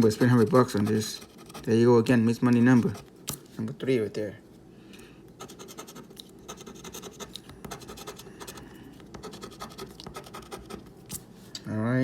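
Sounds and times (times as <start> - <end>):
coin scratching a lottery ticket: 0.0 - 1.9, 5.4 - 10.9.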